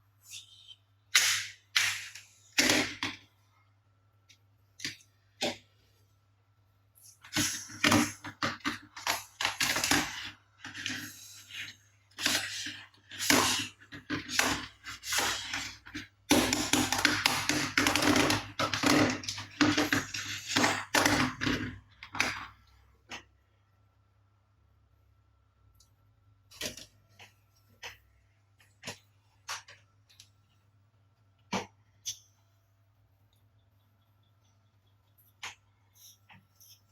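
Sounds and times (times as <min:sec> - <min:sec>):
plastic toy cars clicking and rattling: 0:07.0 - 0:23.3.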